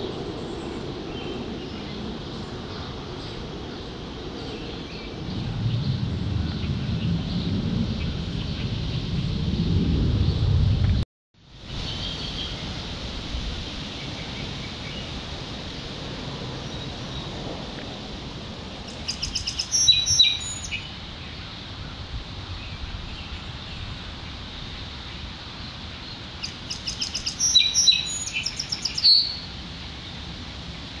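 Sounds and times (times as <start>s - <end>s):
songbird singing with trill: 0.0s - 8.8s, 11.8s - 12.6s, 18.9s - 21.5s, 22.6s - 30.2s
outdoor background noise: 0.0s - 31.0s.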